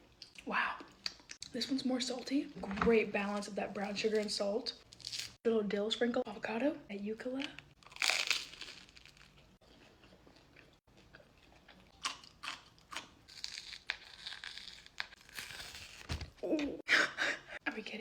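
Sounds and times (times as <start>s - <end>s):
person chewing crunchy food: 7.7s - 16.0s.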